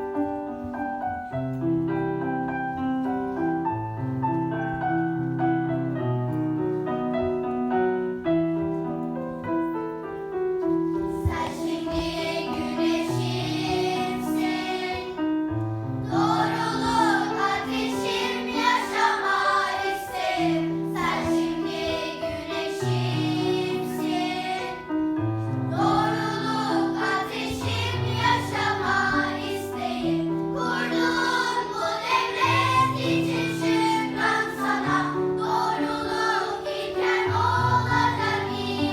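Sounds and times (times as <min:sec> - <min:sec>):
piano playing: 0:00.0 - 0:38.9
children singing: 0:11.1 - 0:15.4, 0:16.0 - 0:38.9.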